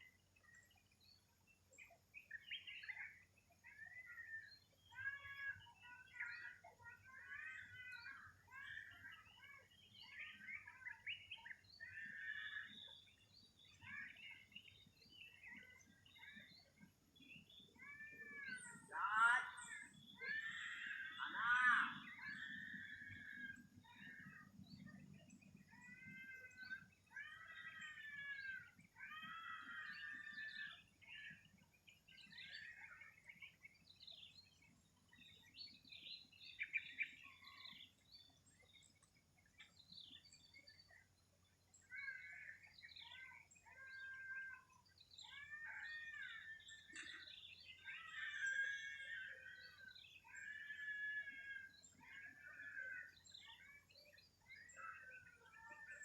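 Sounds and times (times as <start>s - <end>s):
songbirds warbling chirps: 0.0s - 56.0s.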